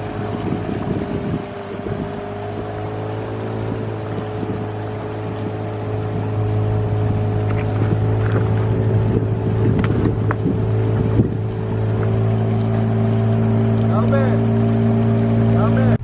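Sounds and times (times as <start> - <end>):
motorboat engine running: 0.0 - 16.0.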